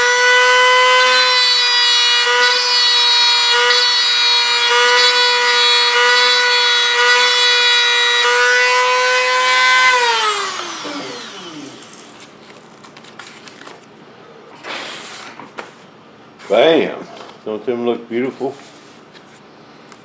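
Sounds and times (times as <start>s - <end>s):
rotary tool whining: 0.0s - 12.4s.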